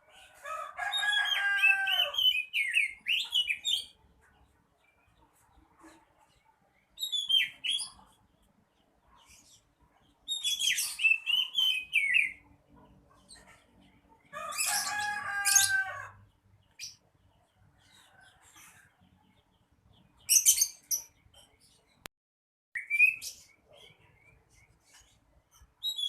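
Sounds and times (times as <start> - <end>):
bird singing: 0.9 - 5.3, 6.8 - 13.9, 22.8 - 26.0.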